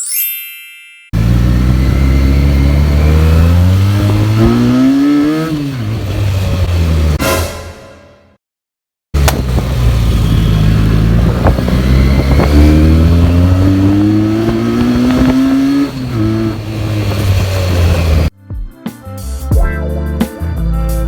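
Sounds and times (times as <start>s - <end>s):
motorcycle engine rumbling: 1.2s - 7.2s, 9.2s - 18.3s.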